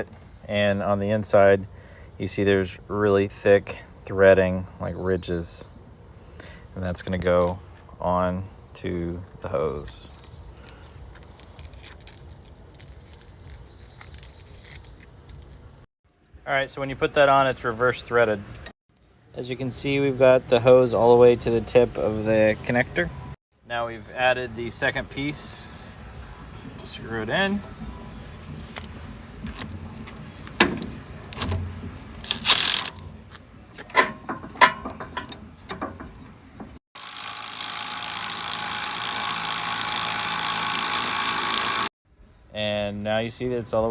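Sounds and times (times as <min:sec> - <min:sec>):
handling noise scratching and clicking: 0:09.8 - 0:15.9, 0:27.6 - 0:36.8.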